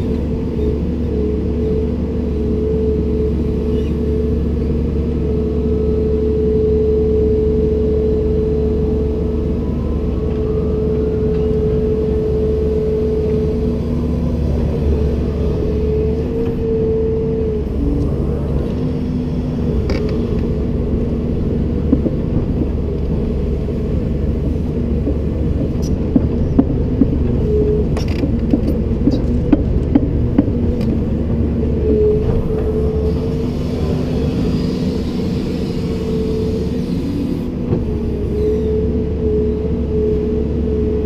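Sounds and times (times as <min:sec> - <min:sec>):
excavator engine drone: 0:00.0 - 0:41.0
knocks and clanks: 0:25.0 - 0:31.0.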